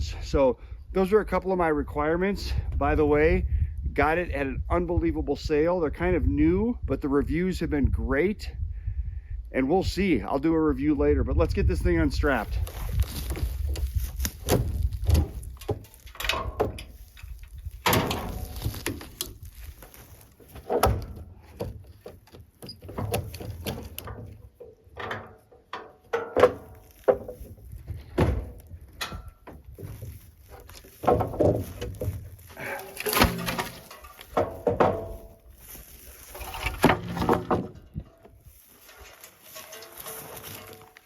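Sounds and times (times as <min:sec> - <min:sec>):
equipment knocks and scrapes: 0:12.4 - 0:41.0.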